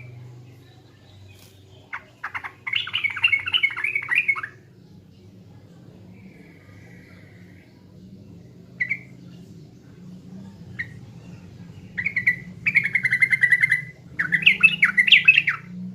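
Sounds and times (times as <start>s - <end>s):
steady low hum: 0.0s - 15.9s
bird chattering trill: 1.9s - 4.6s.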